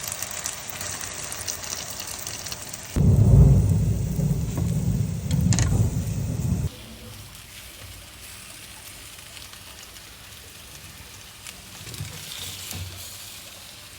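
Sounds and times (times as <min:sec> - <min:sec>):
omelette sizzling in oil: 0:00.0 - 0:03.1, 0:06.2 - 0:13.9.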